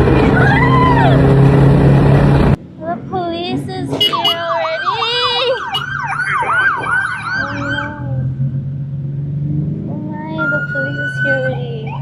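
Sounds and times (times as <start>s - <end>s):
police siren yelping: 0.0s - 2.5s, 4.6s - 8.1s.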